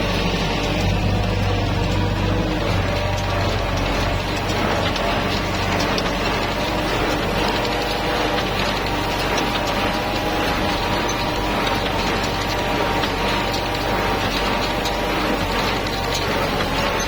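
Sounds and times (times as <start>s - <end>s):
hay baler clicking and rattling: 0.0s - 17.0s
tractor engine running: 0.0s - 17.0s.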